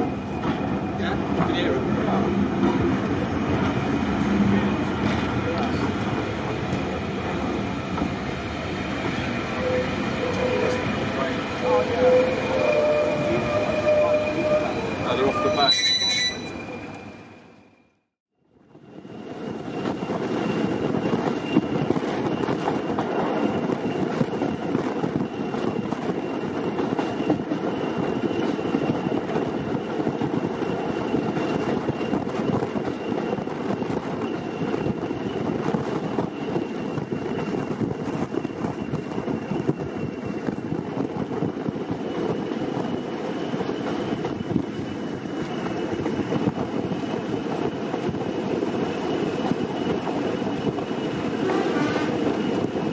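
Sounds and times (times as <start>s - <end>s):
diesel locomotive engine rumbling: 0.0s - 17.2s.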